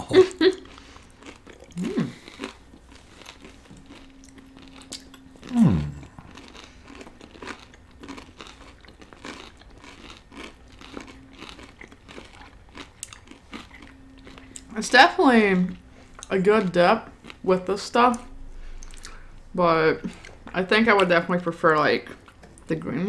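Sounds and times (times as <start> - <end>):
chewing crisp food: 0.2 - 19.4, 22.0 - 22.8
low falling vocal sound: 5.5 - 6.3.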